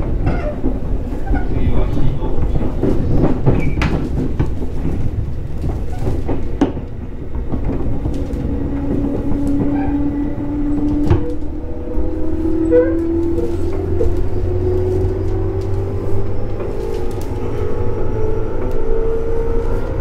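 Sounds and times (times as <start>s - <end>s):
rail-joint clicks: 0.0s - 19.7s
train wheels rumbling on rail: 0.0s - 20.0s.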